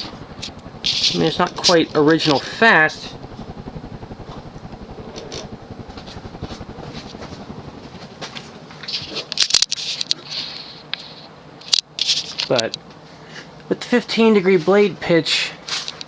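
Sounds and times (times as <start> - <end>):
ceiling fan motor moan: 0.0 - 9.2
loud rustling: 0.0 - 10.5.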